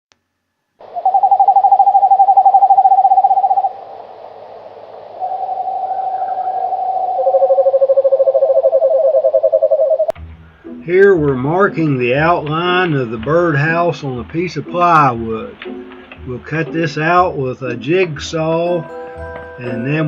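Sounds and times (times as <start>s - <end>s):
lower-pitched owl trill: 0.8s - 10.1s
owls trilling: 0.8s - 10.2s.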